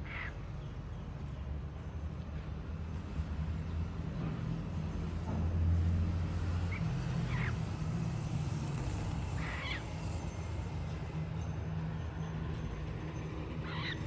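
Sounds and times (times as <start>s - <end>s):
cockatiels chirping: 13.6s - 14.0s.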